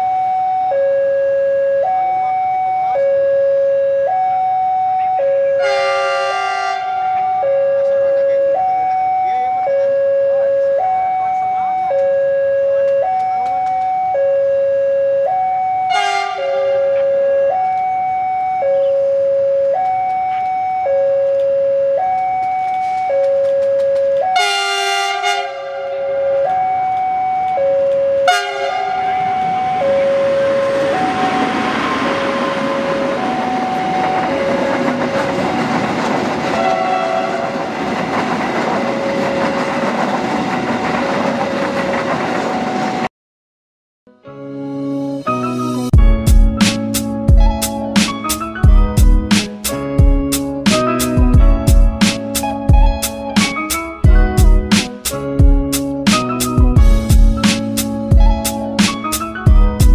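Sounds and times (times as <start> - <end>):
level crossing alarm: 0.0 - 35.5
locomotive horn blasts: 3.1 - 10.9, 14.0 - 17.6, 23.7 - 27.0, 27.6 - 34.7, 36.5 - 37.6
train rumbling over rails: 28.2 - 43.1, 46.0 - 59.9.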